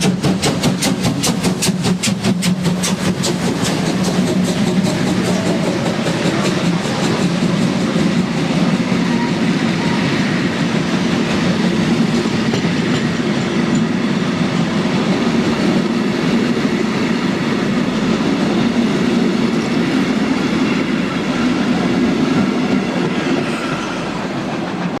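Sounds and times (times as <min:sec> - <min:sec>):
train wheels clattering over rails: 0:00.0 - 0:25.0.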